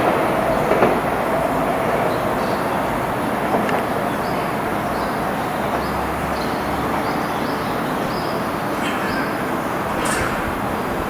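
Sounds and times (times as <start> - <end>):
train rumbling along track: 0.0 - 11.0
small bird chirping: 5.8 - 11.0.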